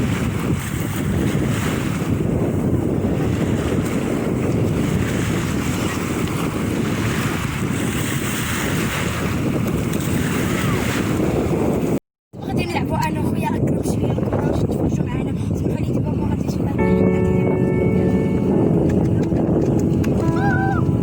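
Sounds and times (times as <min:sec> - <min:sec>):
sea surf on beach: 0:00.0 - 0:12.0
wind buffeting microphone: 0:00.0 - 0:21.0.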